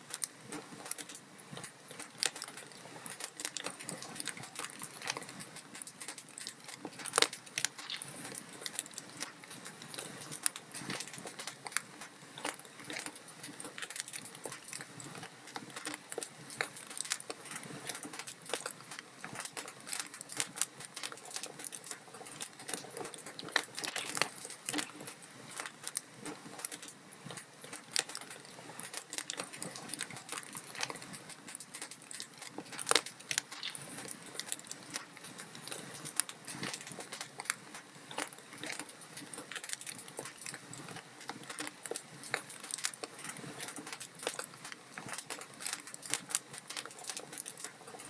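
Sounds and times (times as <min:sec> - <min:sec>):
wood fire crackling and popping: 0:00.0 - 0:48.0.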